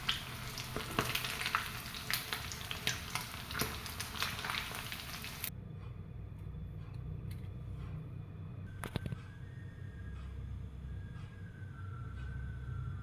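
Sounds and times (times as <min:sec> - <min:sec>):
food sizzling in hot oil: 0:00.0 - 0:05.5.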